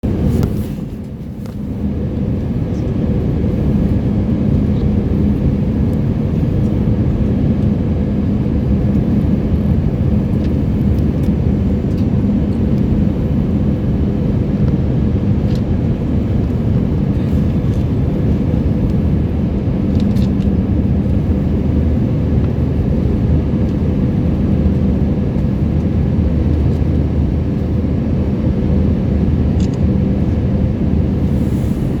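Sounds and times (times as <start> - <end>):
airliner cabin engine drone: 0.0 - 32.0.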